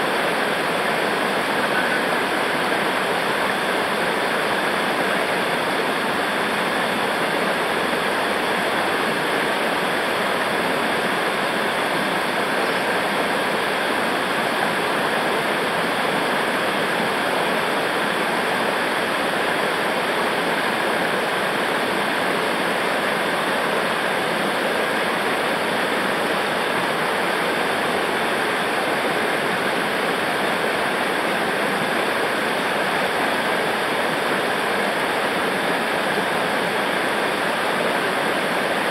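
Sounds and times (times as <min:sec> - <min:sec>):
rushing river water: 0:00.0 - 0:38.9.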